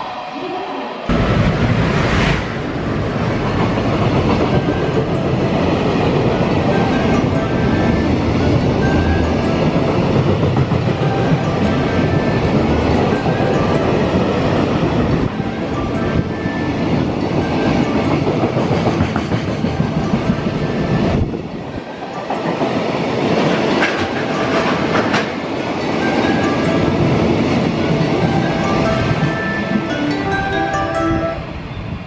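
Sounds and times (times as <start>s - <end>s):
freight train rumbling past: 0.0s - 32.0s
wheels clacking over rail joints: 3.2s - 20.7s, 22.1s - 30.2s.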